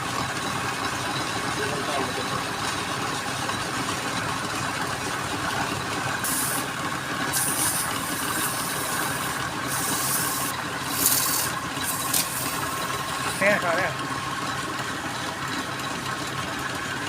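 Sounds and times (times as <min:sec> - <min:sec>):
wood lathe running: 0:00.0 - 0:17.0
high-pitched wood cutting noise: 0:06.2 - 0:13.6.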